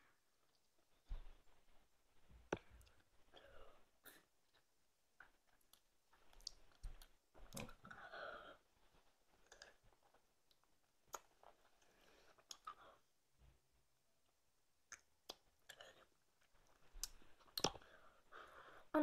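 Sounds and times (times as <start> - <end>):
lip smacks and clicks: 5.2 - 7.8, 10.4 - 12.8, 14.8 - 17.9.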